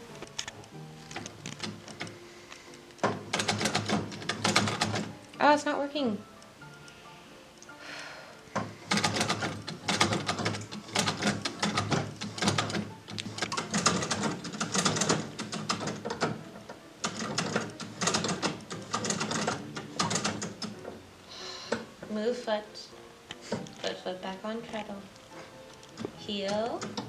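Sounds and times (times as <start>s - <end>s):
treadle sewing machine clattering: 3.1s - 5.1s, 8.9s - 16.4s, 17.0s - 20.9s, 26.0s - 27.0s.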